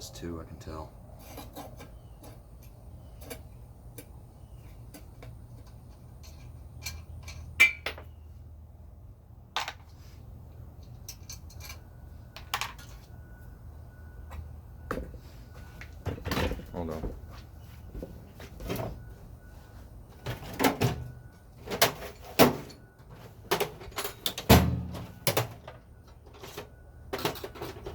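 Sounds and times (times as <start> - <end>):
metal tools clinking: 4.8 - 7.9, 10.8 - 13.1.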